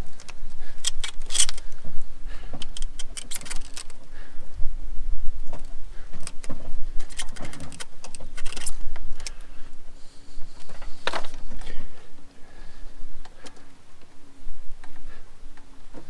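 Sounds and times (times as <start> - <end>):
metal tools clinking and rattling: 0.8 - 1.6, 7.0 - 8.8.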